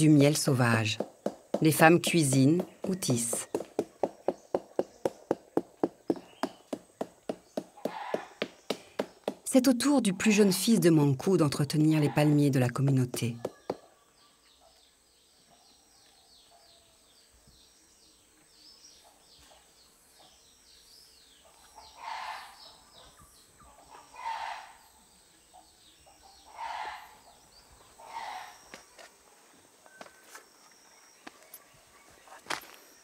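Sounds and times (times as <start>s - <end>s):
birds chirping: 0.0s - 33.0s
loud bird calls: 2.6s - 9.4s, 21.4s - 25.0s, 25.6s - 29.1s.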